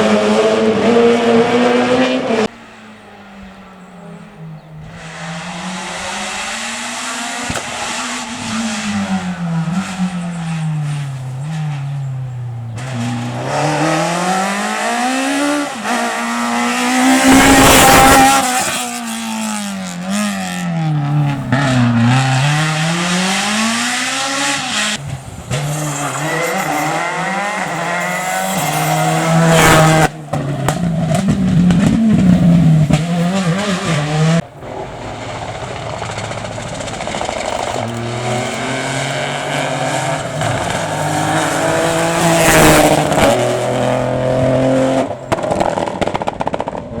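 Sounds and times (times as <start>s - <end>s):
car rushing past: 0.0s - 47.0s
rally car engines revving: 0.0s - 47.0s
tyre squeal: 25.0s - 30.1s.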